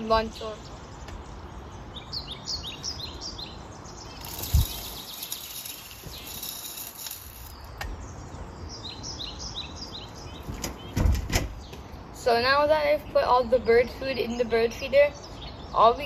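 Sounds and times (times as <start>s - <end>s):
small birds chirping: 0.0s - 16.0s
birdseed rattling into feeder: 4.1s - 7.7s
thump: 10.5s - 11.5s.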